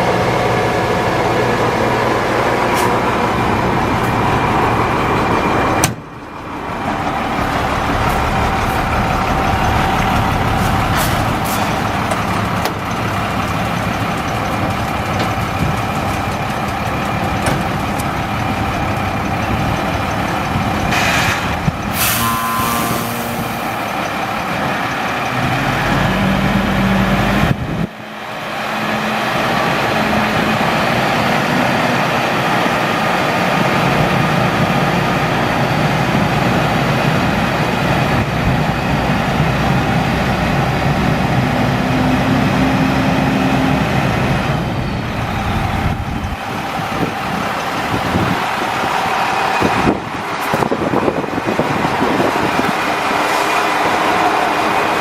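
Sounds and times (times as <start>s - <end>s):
truck diesel engine running: 0.0s - 55.0s
air brake hiss: 20.9s - 23.4s.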